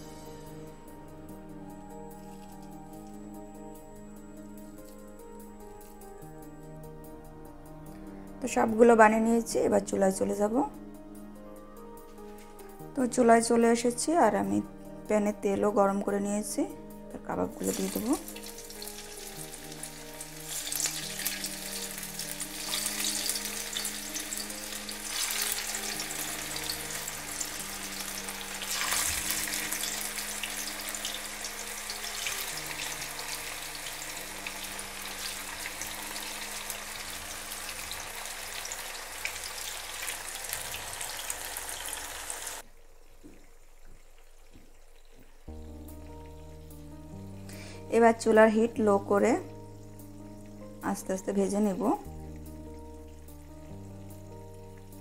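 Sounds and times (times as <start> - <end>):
hot oil sizzling in a frying pan: 17.5 - 42.7.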